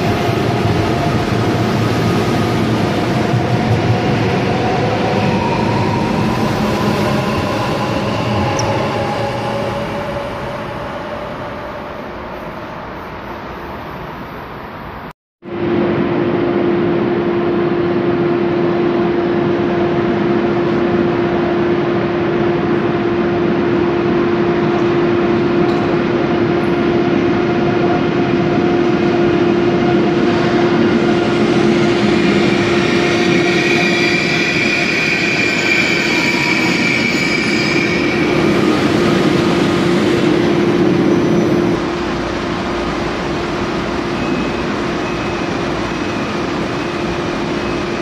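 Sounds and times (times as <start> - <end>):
train braking: 27.6 - 48.0
high brake squealing: 33.1 - 38.8.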